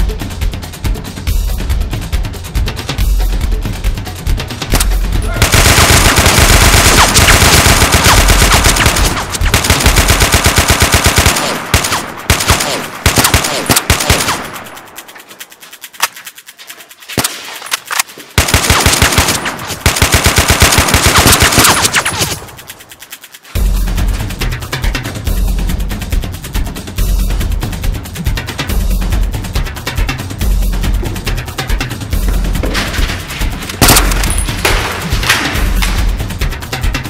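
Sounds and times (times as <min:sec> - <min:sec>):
automatic gunfire: 0:04.7 - 0:15.1, 0:17.2 - 0:22.7, 0:33.8 - 0:35.6.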